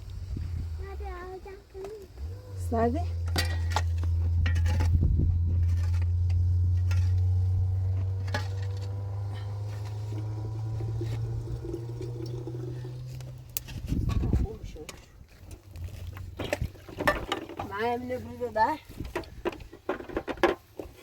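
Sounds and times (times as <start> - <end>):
low mechanical hum: 0.0 - 14.6.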